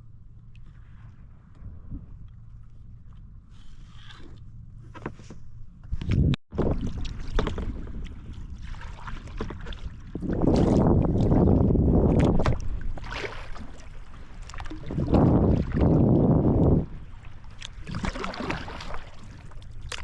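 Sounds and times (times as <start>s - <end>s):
water splashing around kayak hull: 5.9s - 20.0s
wind buffeting microphone: 5.9s - 20.0s.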